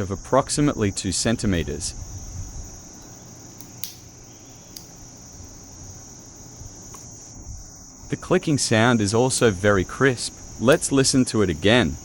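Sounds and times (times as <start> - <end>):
steady high hiss: 0.0 - 12.0
metal clasp clicks: 3.0 - 4.0.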